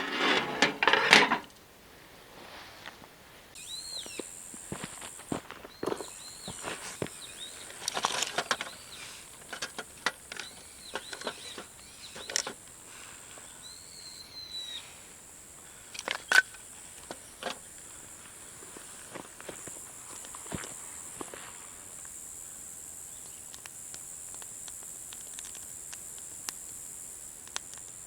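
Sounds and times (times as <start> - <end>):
clicks and knocks: 0.0 - 1.6
birds calling: 3.6 - 4.4, 5.6 - 15.0.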